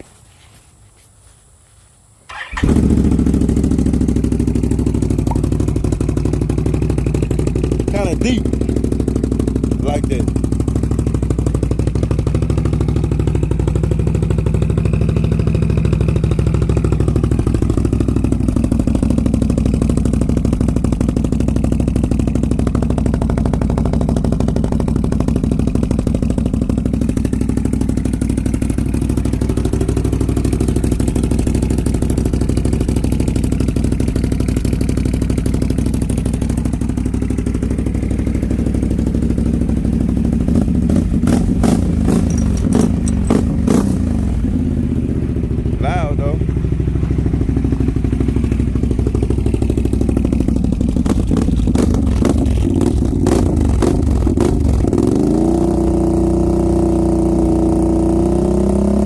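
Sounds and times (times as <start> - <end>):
atv engine idling: 2.3 - 59.0
rattle of clicks: 42.1 - 43.5.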